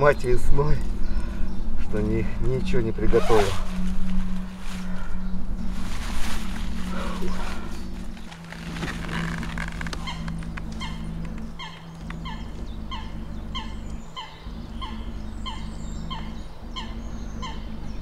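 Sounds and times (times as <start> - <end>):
steady low hum: 0.0 - 18.0
fabric rustling: 3.2 - 10.7.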